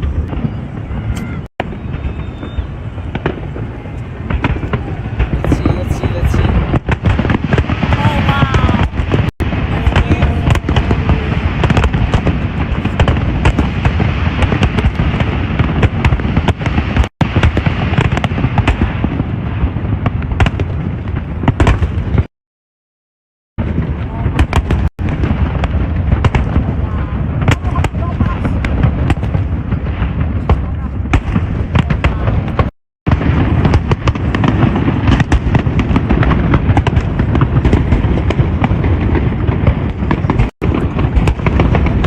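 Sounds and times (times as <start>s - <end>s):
crowd voices: 0.0s - 6.7s, 7.8s - 11.8s
fireworks bangs and crackling: 0.0s - 22.3s, 23.6s - 42.0s.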